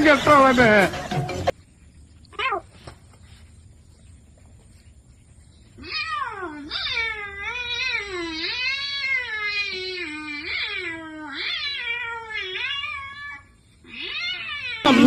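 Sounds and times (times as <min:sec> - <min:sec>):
cat yowling: 0:02.3 - 0:02.8, 0:05.8 - 0:15.0.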